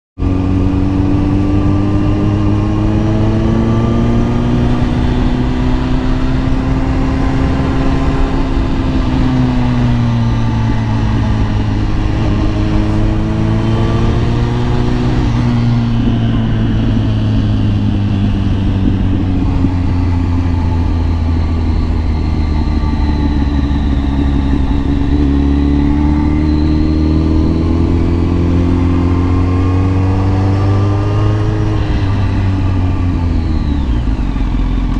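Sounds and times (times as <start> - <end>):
motorcycle engine running: 0.2 - 34.9.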